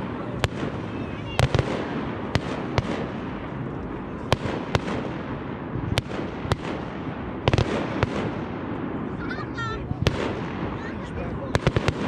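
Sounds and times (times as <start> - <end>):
continuous rush of noise: 0.0 - 12.0
fireworks bangs: 0.0 - 12.0.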